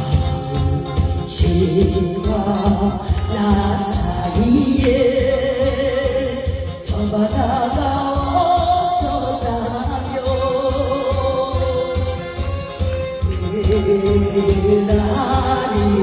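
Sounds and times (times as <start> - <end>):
backing track with bass beat: 0.0 - 16.0.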